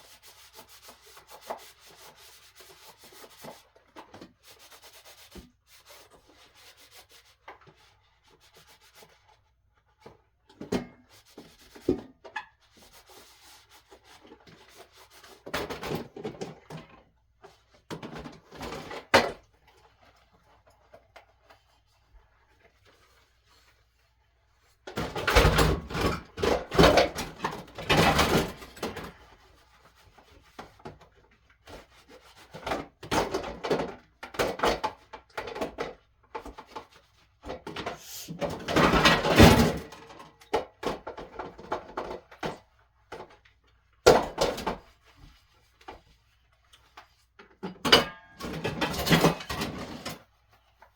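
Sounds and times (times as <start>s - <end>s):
rubbing and scraping: 37.8s - 39.4s.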